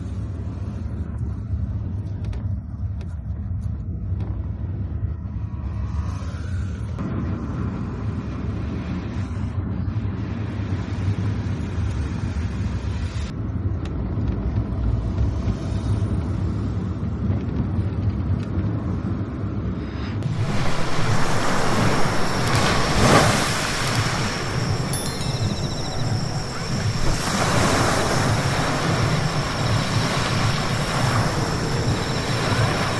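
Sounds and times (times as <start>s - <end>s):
tyres hissing on wet road: 20.2s - 25.0s, 26.4s - 32.9s
car engine and road rumble: 25.7s - 32.9s.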